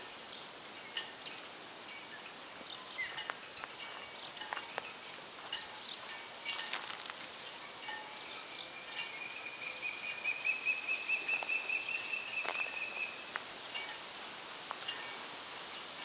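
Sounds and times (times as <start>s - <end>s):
outdoor background noise: 0.0s - 16.0s
bird whistling: 8.6s - 13.3s.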